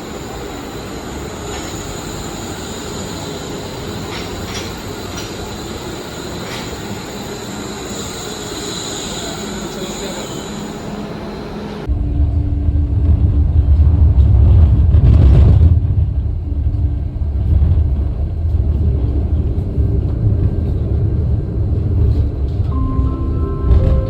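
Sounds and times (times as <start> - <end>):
railway car rumbling: 0.0 - 24.0.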